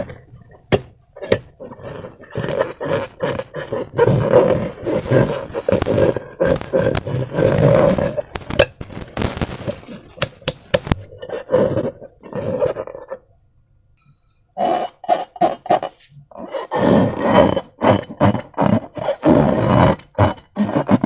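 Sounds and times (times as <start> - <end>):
slime balloon squelching: 0.0 - 13.0
sharp clicks: 4.7 - 11.1.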